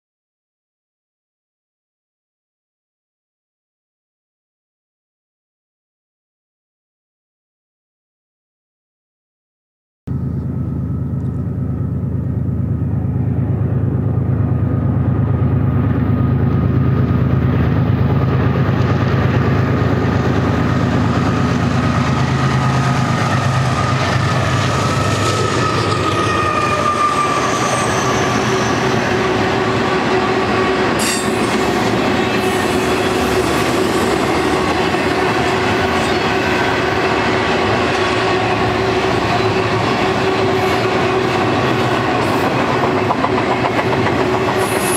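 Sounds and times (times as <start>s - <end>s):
locomotive engine drone: 10.1s - 44.9s
wheel-on-rail noise: 14.3s - 44.9s.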